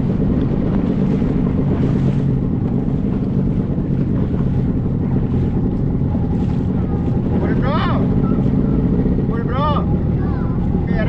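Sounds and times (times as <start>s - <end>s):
motorboat engine running: 0.0s - 11.0s
wind rumbling on microphone: 0.0s - 11.0s.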